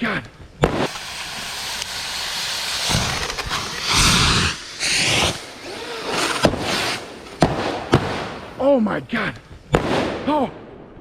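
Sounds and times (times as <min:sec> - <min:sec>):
fireworks hissing: 0:00.4 - 0:09.8
firework bang: 0:00.6 - 0:08.6, 0:09.7 - 0:10.2.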